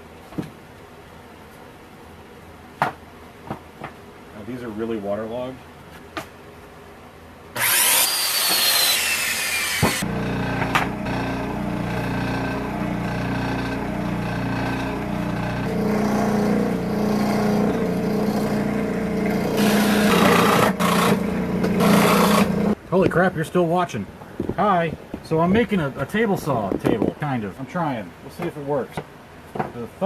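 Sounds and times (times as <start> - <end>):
circular saw cutting board: 7.6 - 22.8.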